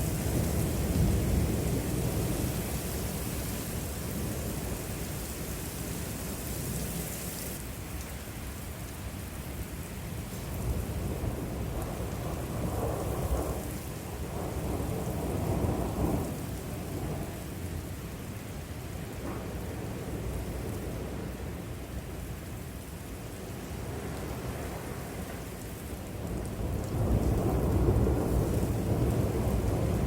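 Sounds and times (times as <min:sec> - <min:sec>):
steady rain: 0:00.0 - 0:30.0
low thunder rumbling: 0:10.6 - 0:17.5, 0:19.1 - 0:22.2, 0:26.2 - 0:30.0.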